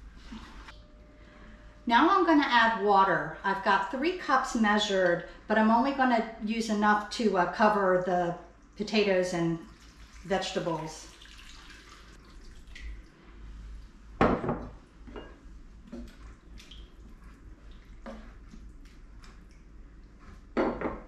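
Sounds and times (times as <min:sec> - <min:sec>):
water pouring into a pot: 0:09.6 - 0:13.1
water splashing: 0:09.7 - 0:13.1, 0:15.9 - 0:19.7.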